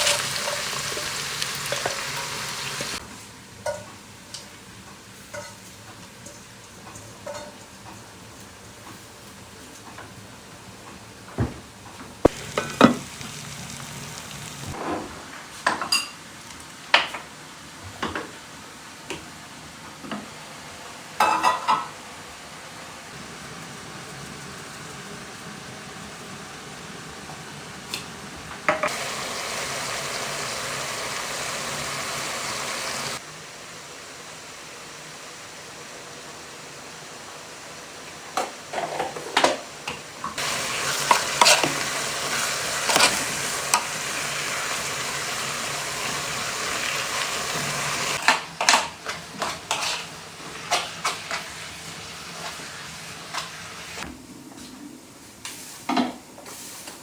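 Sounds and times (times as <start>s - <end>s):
food frying in a pan: 0.0s - 10.2s, 12.2s - 14.8s, 20.2s - 54.1s.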